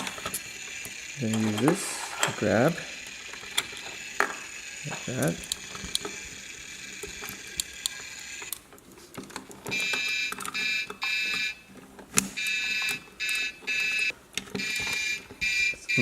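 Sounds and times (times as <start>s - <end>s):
toy electronic hissing effect: 0.0s - 8.6s
plastic clicks from handling toy: 3.2s - 11.4s
high electronic beeping: 12.4s - 16.0s.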